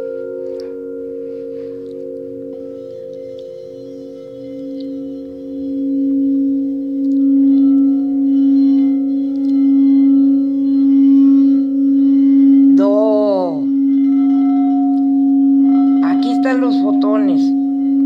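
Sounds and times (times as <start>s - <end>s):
singing bowls ringing: 0.0s - 18.0s
person's voice: 12.8s - 13.7s, 16.0s - 17.6s.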